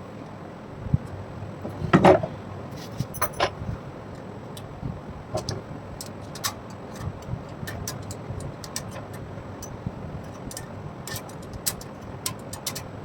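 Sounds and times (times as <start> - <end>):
metal parts and tools clinking: 2.8 - 3.6, 7.7 - 12.9.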